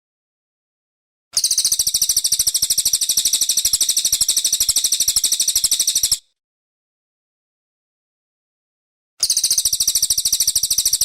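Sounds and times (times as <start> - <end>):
songbird high-pitched rapid trill: 1.4 - 6.3, 9.2 - 11.0.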